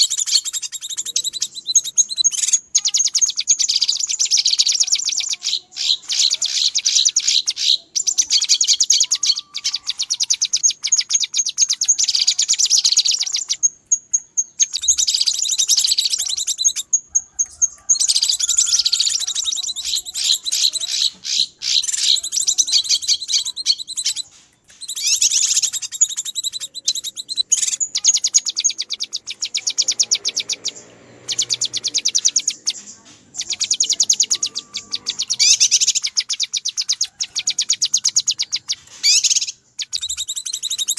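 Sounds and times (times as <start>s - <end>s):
bird harsh alarm chatter: 0.0s - 40.9s.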